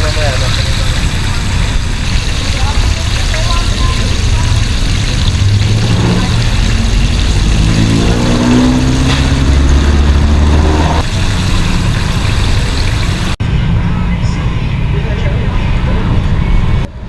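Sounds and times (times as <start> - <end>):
road traffic rumbling: 0.0 - 17.0
vehicle engine accelerating past: 4.5 - 13.4.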